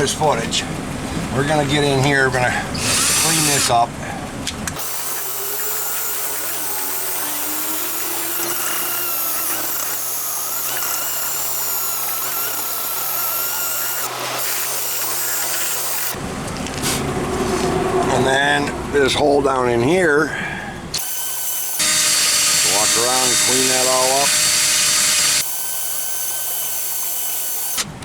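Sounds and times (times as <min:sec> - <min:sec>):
power drill scrubbing: 0:02.6 - 0:03.9, 0:04.8 - 0:18.6, 0:21.0 - 0:27.9.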